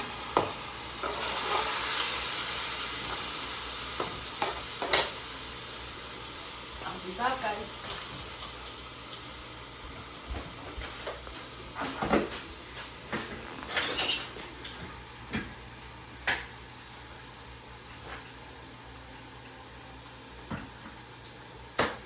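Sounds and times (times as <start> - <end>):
pots and dishes clinking: 4.0 - 5.2, 10.3 - 15.6.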